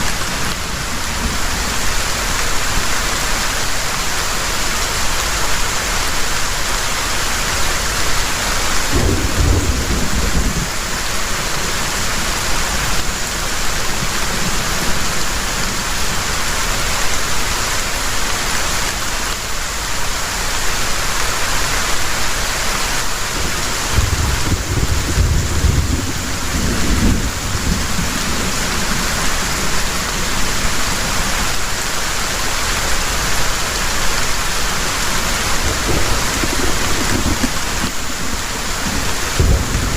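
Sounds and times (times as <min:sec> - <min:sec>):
heavy rain pouring: 0:00.0 - 0:39.9
thunder rumbling: 0:08.8 - 0:13.1, 0:23.3 - 0:31.1, 0:35.3 - 0:39.9.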